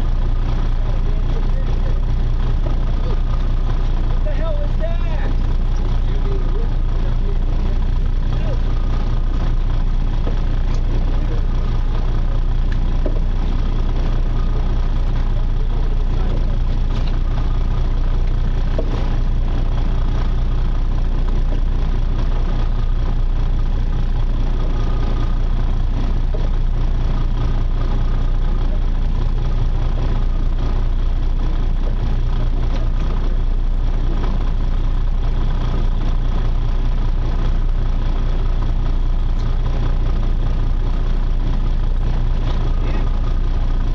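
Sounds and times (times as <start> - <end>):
boat engine humming: 0.0 - 43.9.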